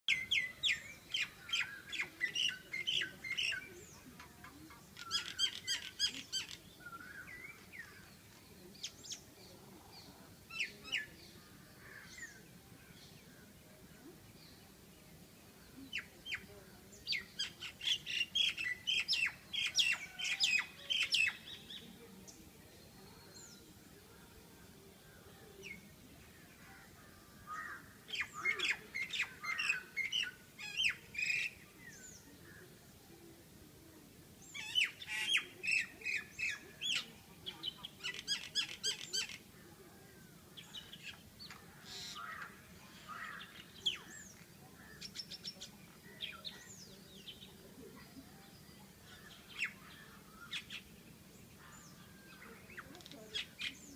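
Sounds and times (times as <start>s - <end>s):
birds chirping and squawking: 0.1s - 8.1s, 40.4s - 45.5s.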